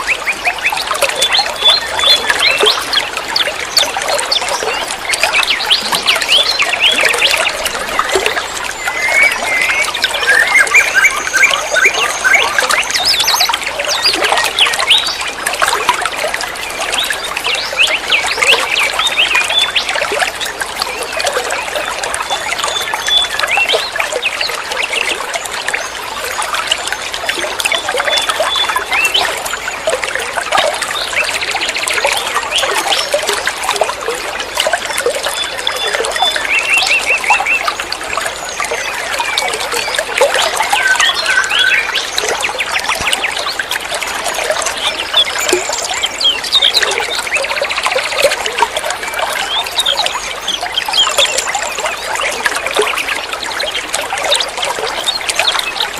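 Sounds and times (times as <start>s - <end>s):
birds chirping: 0.0s - 15.2s, 35.4s - 47.8s
water trickling and splashing: 0.0s - 55.9s.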